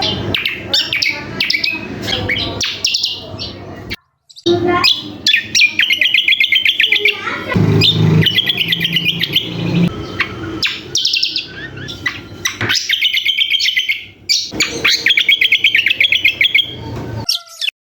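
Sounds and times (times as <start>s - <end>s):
songbird chattering trills: 0.0s - 17.7s
low rumble: 7.6s - 10.2s.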